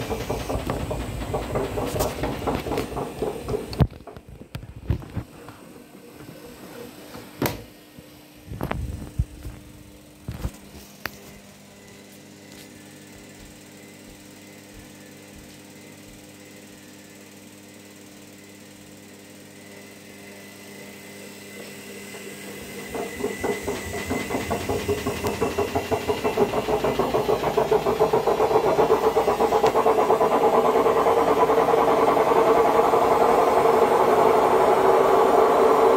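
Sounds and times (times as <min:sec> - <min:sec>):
washing machine drum pulsing: 0:00.0 - 0:04.8, 0:20.9 - 0:35.9
washing machine running: 0:00.0 - 0:35.9.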